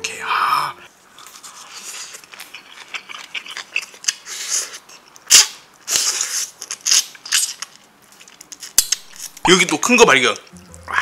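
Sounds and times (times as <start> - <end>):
wet crunchy chewing: 1.2 - 9.4.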